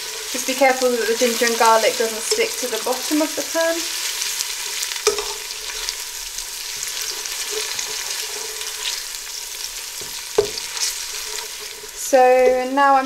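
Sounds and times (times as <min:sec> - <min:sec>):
onions sizzling in hot oil: 0:00.0 - 0:13.0
spoon clacking against pot: 0:05.0 - 0:05.5
spoon scraping pot bottom: 0:10.0 - 0:12.8.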